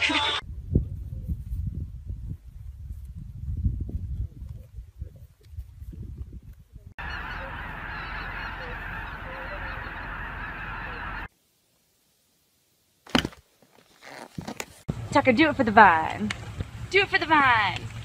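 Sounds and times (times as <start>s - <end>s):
geese honking: 7.0s - 11.3s.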